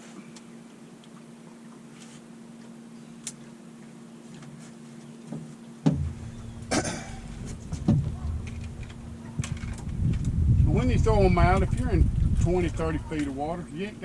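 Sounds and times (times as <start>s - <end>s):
steady low hum: 0.0s - 14.0s
wind rumbling on microphone: 6.0s - 14.0s.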